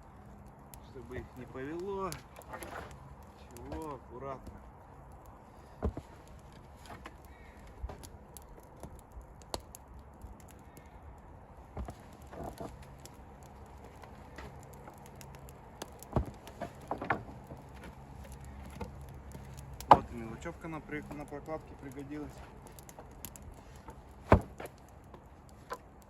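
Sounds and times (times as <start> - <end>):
wooden boards knocking together: 16.1 - 17.3.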